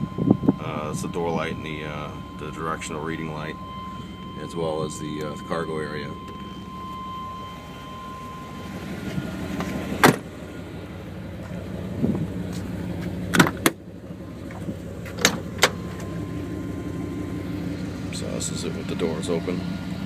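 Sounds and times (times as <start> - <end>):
steady low hum: 0.0 - 20.0
car door latches clicking: 9.6 - 10.3, 13.3 - 13.8, 15.0 - 16.0.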